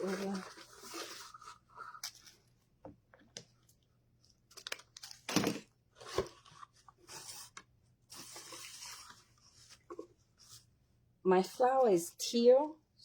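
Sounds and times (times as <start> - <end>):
ribbon rustling and crinkling: 0.0 - 2.4.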